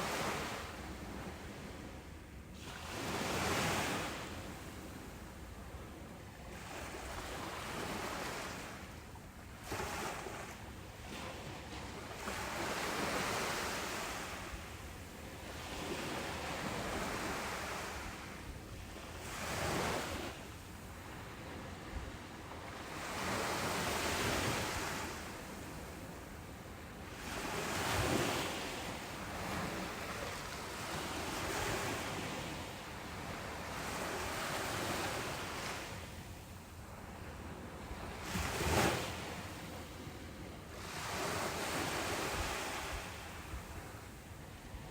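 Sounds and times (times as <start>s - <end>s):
ocean waves breaking on beach: 9.6s - 44.9s.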